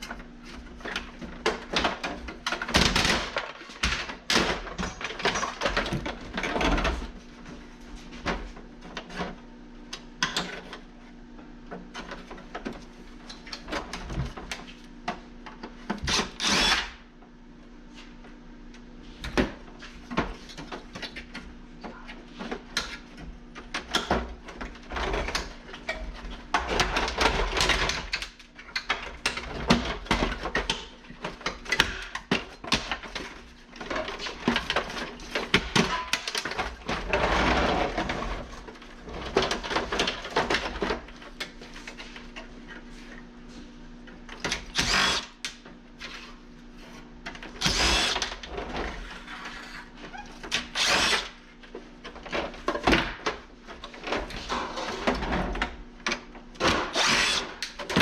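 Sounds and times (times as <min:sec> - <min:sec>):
power drill bursts: 0:16.3 - 0:17.0, 0:44.7 - 0:45.3, 0:47.6 - 0:48.2, 0:50.8 - 0:51.2, 0:56.9 - 0:57.5.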